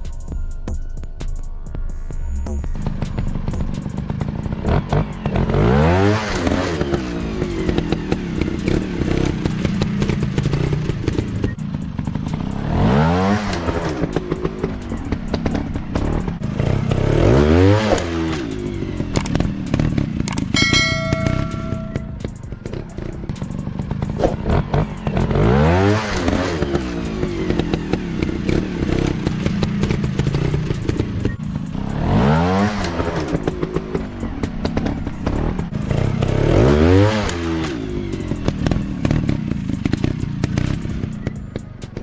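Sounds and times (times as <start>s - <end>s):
engine running and clattering: 1.7s - 42.0s
dirt bike engines revving: 3.7s - 41.7s
steady high tone: 20.6s - 22.4s.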